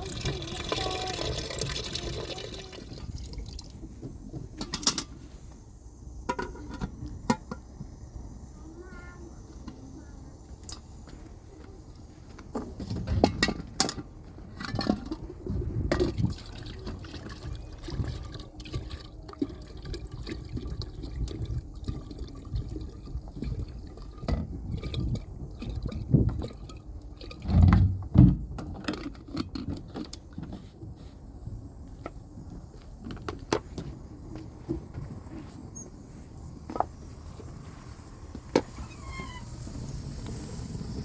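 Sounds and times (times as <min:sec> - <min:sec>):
water being poured: 0:00.0 - 0:03.9, 0:16.0 - 0:28.1.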